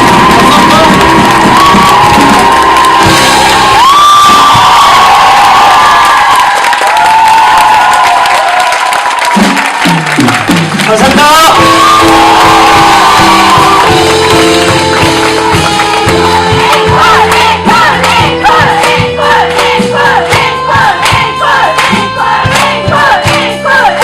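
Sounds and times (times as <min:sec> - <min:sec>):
band playing a steady beat: 0:00.0 - 0:05.5, 0:09.3 - 0:24.0
voices singing long notes: 0:11.6 - 0:24.0.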